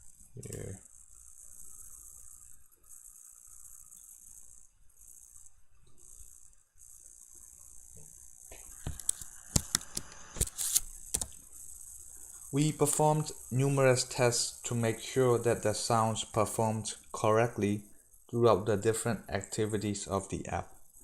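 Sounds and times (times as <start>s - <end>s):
faint steady hiss: 0.0s - 21.0s
sharp clicks and rattles: 8.6s - 11.4s.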